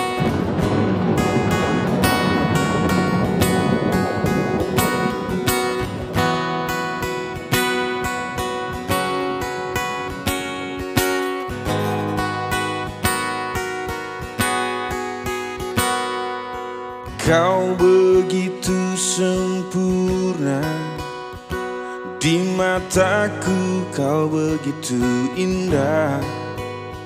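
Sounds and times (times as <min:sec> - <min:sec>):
acoustic guitar strumming chords: 0:00.0 - 0:27.0.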